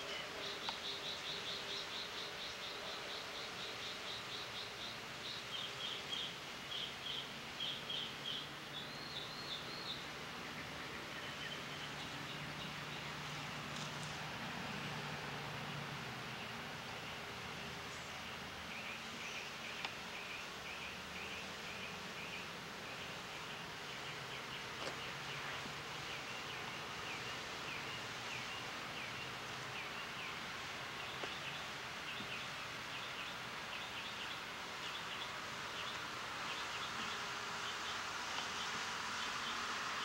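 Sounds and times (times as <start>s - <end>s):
background hiss and low hum: 0.0s - 40.0s.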